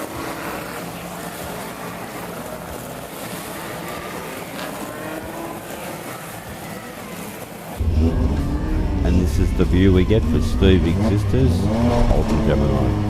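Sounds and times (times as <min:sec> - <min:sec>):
racing car engines: 0:00.0 - 0:13.0
steady rushing noise: 0:00.0 - 0:13.0.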